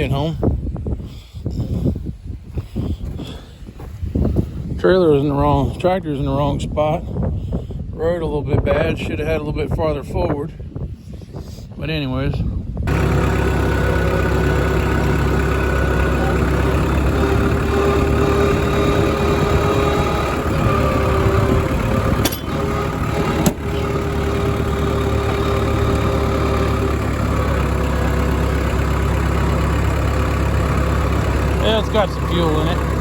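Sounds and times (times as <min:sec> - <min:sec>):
engine idling: 0:12.9 - 0:33.0.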